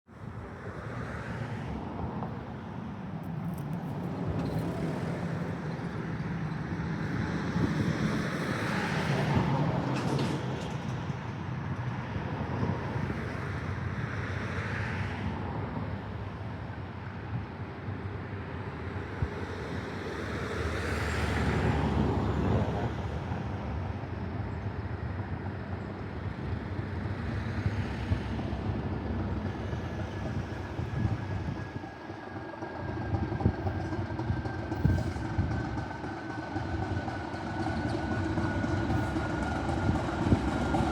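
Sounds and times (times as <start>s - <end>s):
diesel locomotive engine hum: 0.1s - 40.9s.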